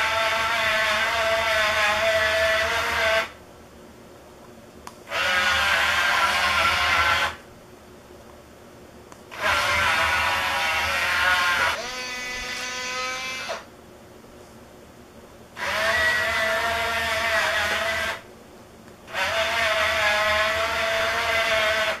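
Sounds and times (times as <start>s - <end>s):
small electric motors whining: 0.0s - 3.4s, 5.1s - 7.4s, 9.3s - 13.7s, 15.6s - 18.2s, 19.1s - 22.0s.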